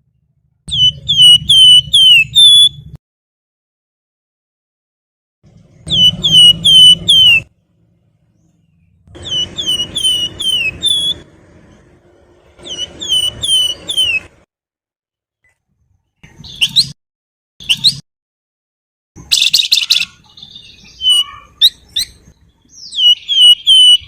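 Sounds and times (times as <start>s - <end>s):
bird twittering: 0.7s - 2.9s, 5.8s - 7.5s, 8.4s - 11.2s, 12.6s - 14.3s, 16.2s - 17.0s, 19.2s - 24.0s
bird singing whistled notes: 0.7s - 3.0s, 5.8s - 7.5s, 9.2s - 11.2s, 12.6s - 14.3s, 16.4s - 17.0s, 17.6s - 18.0s, 19.2s - 24.0s.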